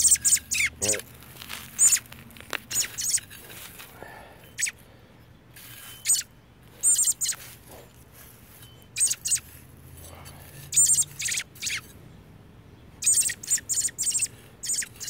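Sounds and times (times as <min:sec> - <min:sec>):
high-pitched bird chirps: 0:00.0 - 0:01.0, 0:01.8 - 0:02.1, 0:02.7 - 0:03.3, 0:04.5 - 0:04.8, 0:05.7 - 0:07.6, 0:08.6 - 0:09.5, 0:10.7 - 0:12.0, 0:13.0 - 0:15.0.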